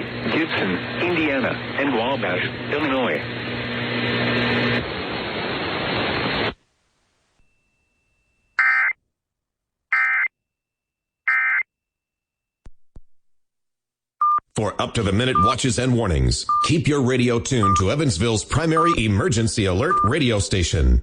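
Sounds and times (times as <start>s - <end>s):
radio static hiss: 0.0s - 6.7s.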